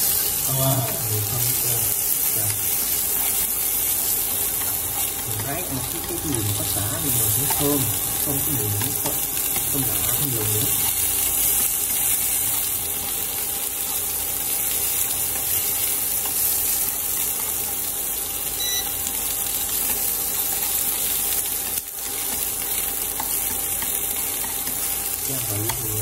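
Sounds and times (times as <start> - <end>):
food sizzling in hot oil: 0.0 - 26.0.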